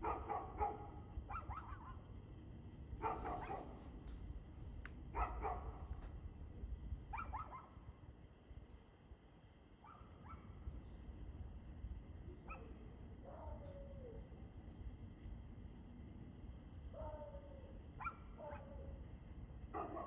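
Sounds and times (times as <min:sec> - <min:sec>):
dog barking: 0:00.0 - 0:02.0, 0:03.0 - 0:03.8, 0:05.1 - 0:06.0, 0:07.1 - 0:07.8, 0:09.8 - 0:10.5, 0:12.4 - 0:13.8, 0:17.0 - 0:18.9, 0:19.7 - 0:20.0.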